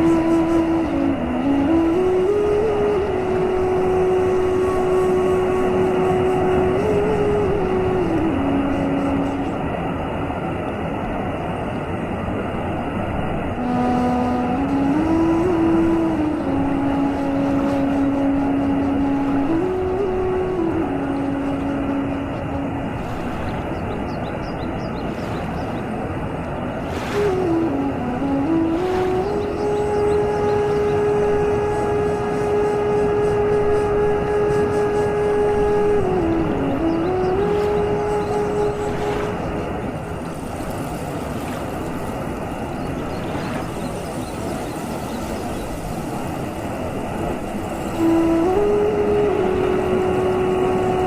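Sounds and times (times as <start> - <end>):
held tone changing pitch: 0.0 - 9.8, 13.6 - 24.2, 27.0 - 40.3, 42.9 - 51.0
waterfall roaring: 0.0 - 23.0, 26.0 - 34.4, 45.1 - 51.0.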